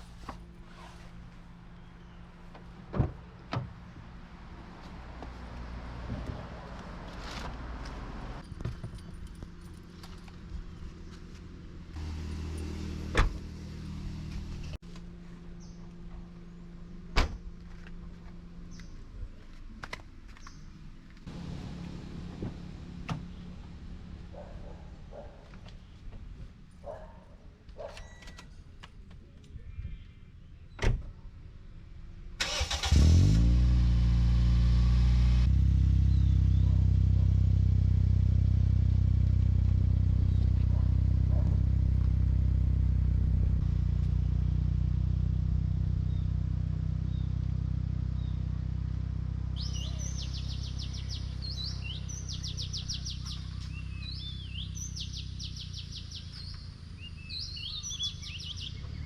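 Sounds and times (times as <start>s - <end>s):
car engine cranking and idling: 6.2s - 26.8s, 31.8s - 57.4s
birds chirping: 36.0s - 36.8s, 49.5s - 59.0s.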